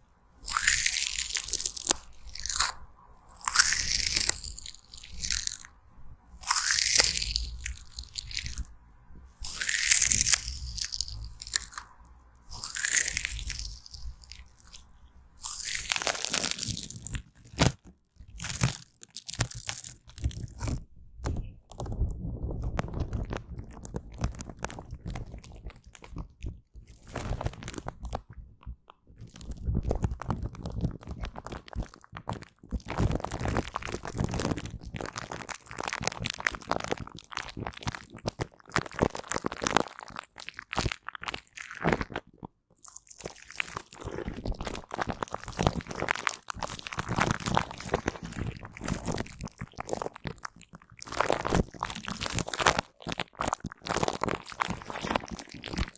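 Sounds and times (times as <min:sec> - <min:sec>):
rubber glove crinkling: 0:12.5 - 0:21.9, 0:22.7 - 0:28.2, 0:29.2 - 0:55.9.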